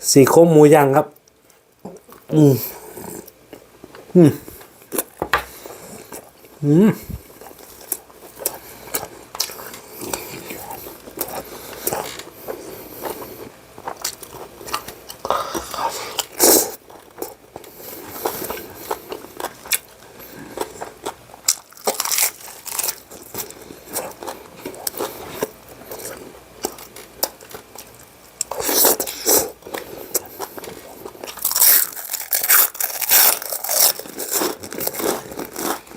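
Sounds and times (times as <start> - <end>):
person chewing food: 1.2 - 35.9
crunching: 21.4 - 35.9.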